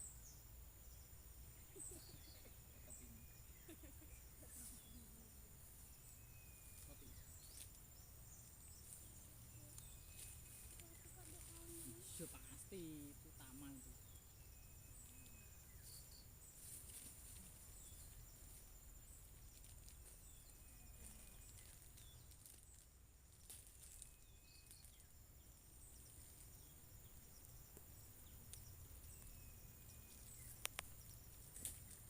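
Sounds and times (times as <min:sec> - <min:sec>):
crickets trilling: 0:00.0 - 0:32.0
sharp clicks: 0:30.5 - 0:31.8.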